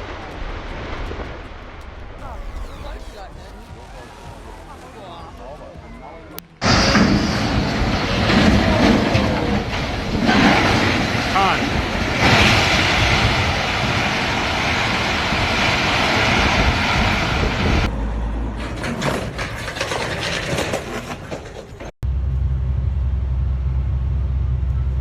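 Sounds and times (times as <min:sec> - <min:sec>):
truck engine and road noise: 0:00.0 - 0:25.0
knocks and rattles: 0:18.5 - 0:21.9
low engine drone: 0:22.0 - 0:25.0.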